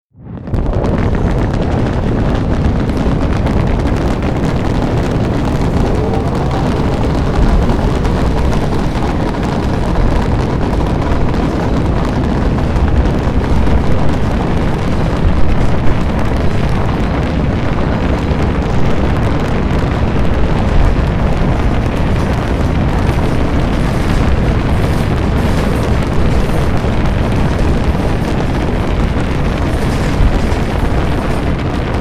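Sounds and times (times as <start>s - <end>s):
deep spaceship engine roar: 0.5s - 12.4s.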